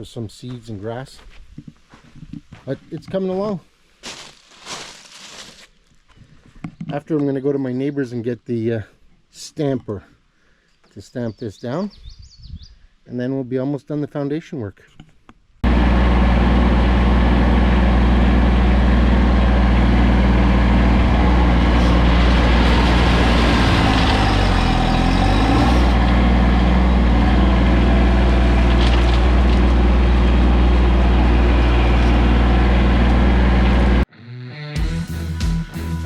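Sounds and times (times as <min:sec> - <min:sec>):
tractor diesel engine running: 0:15.6 - 0:34.1.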